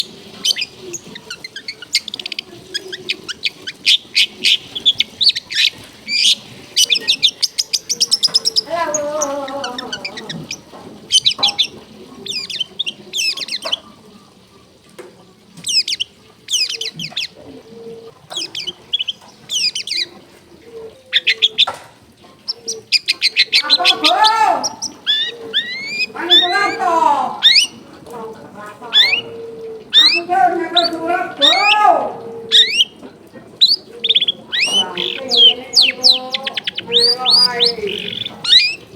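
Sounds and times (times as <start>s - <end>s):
bird lower falling call: 0.0s - 13.9s, 22.5s - 27.9s, 28.6s - 38.9s
bird chattering song and trills: 0.0s - 14.0s, 15.6s - 17.4s, 18.3s - 20.2s, 21.1s - 21.8s, 22.4s - 38.9s.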